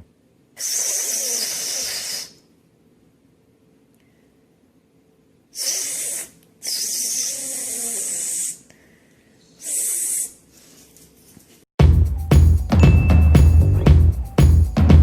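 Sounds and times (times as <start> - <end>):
loud hissing: 0.6 - 2.4, 5.6 - 8.7.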